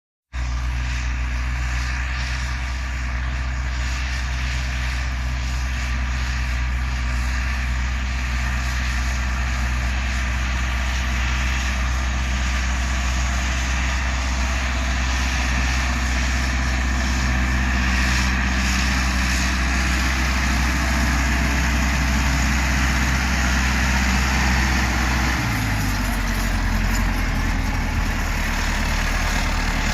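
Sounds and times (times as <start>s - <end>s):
tractor diesel engine running: 0.3s - 29.9s.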